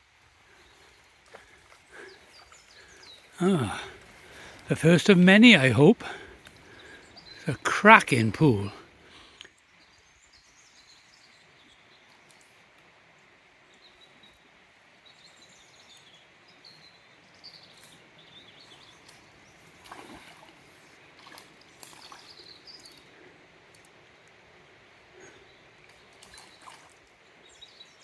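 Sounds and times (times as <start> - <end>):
stream water flowing: 0.0 - 9.2, 18.8 - 27.6
songbirds chirping: 0.0 - 28.0.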